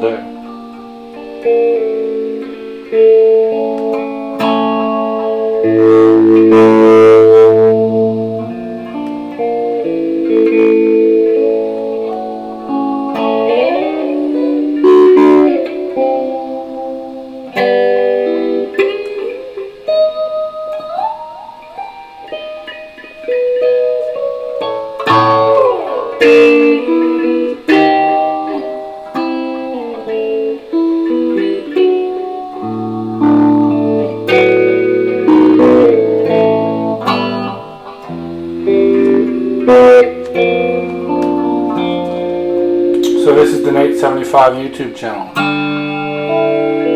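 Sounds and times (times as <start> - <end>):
electric guitar playing: 0.0 - 46.9.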